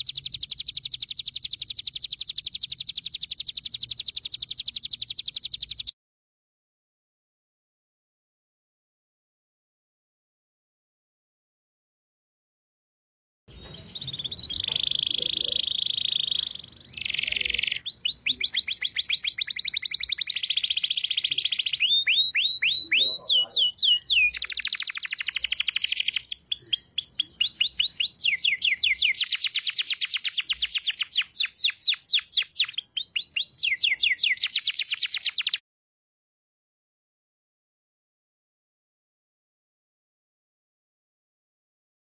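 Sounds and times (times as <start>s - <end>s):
songbird singing: 0.0s - 5.9s, 13.5s - 35.6s.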